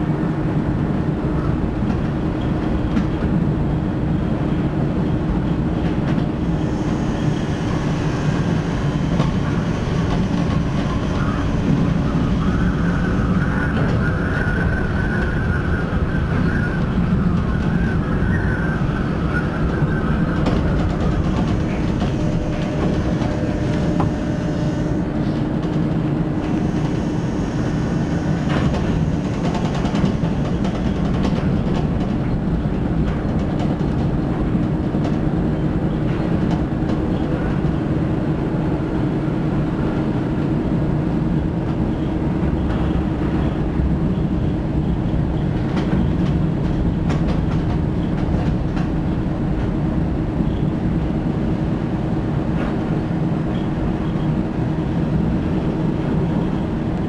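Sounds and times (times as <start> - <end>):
monorail car rumbling: 0.0 - 57.0
drive hum: 19.7 - 27.1.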